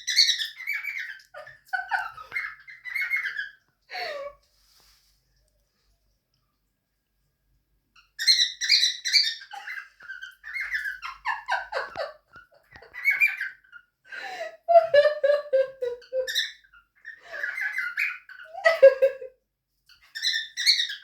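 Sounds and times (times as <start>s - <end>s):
cockatiels chirping: 0.0s - 3.6s, 8.0s - 12.0s, 12.9s - 13.9s, 16.2s - 18.9s, 19.9s - 21.0s.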